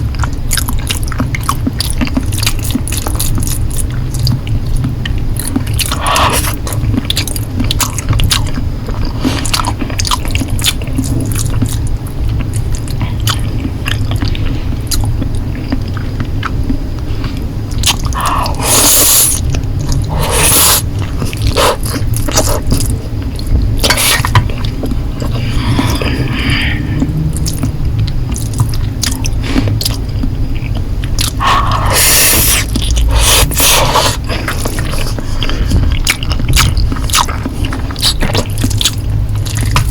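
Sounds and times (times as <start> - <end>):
person chewing noodles: 0.0 - 39.9
slurping noodles: 18.2 - 22.8, 31.4 - 35.8.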